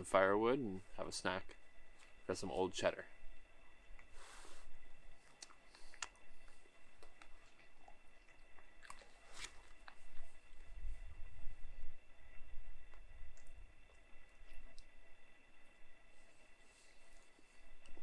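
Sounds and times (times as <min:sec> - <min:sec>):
person chewing cheese: 0:05.2 - 0:10.3.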